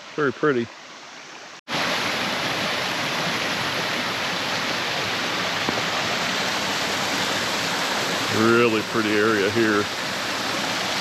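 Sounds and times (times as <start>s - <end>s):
water rushing over waterfall: 1.7s - 11.0s.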